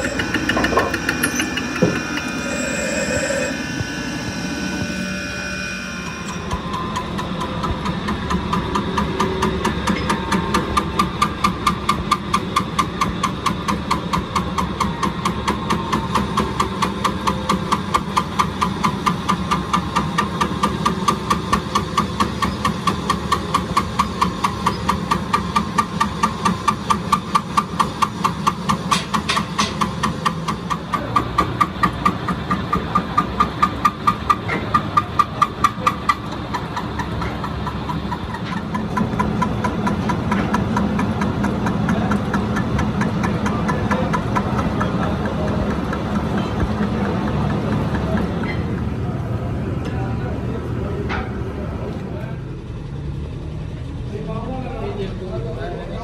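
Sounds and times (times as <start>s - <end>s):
lathe running: 0.0s - 8.8s.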